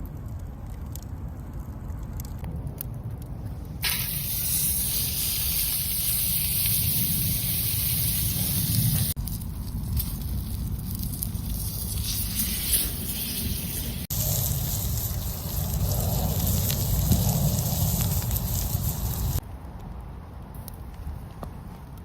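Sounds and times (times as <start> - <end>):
wood fire crackling and popping: 0.0 - 22.0
meat sizzling over fire: 3.8 - 19.4.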